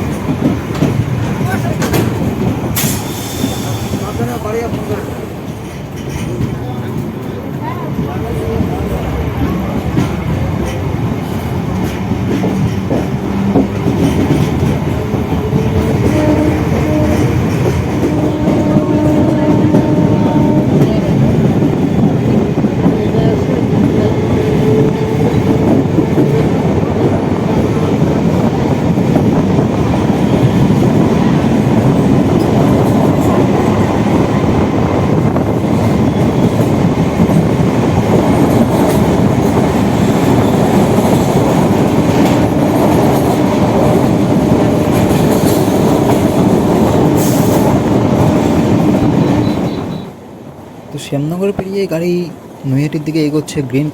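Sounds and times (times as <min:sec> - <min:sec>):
train rumble with wheel clatter: 0:00.0 - 0:53.9
train horn: 0:15.4 - 0:21.4.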